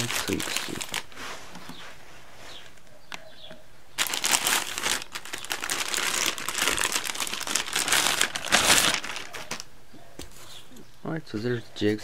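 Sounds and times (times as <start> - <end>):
packaging bag crinkling: 0.0 - 1.2, 4.0 - 9.7.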